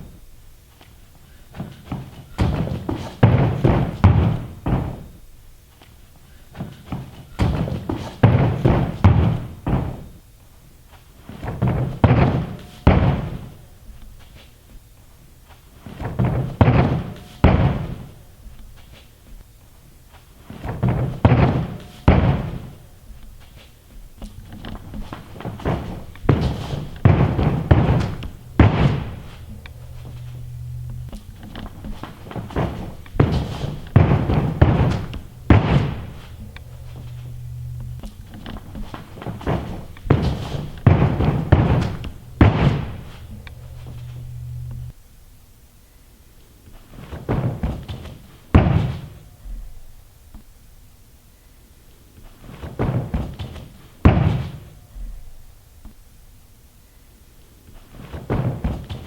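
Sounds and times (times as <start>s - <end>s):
heavy thuds of landing: 0.0s - 45.0s, 46.8s - 50.4s, 52.4s - 56.0s, 57.7s - 59.0s
running footsteps: 0.0s - 45.0s.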